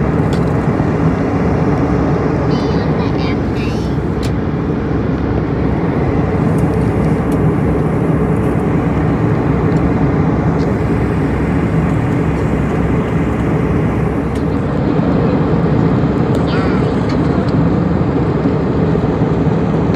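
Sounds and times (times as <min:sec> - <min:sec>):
airliner cabin engine drone: 0:00.0 - 0:19.9.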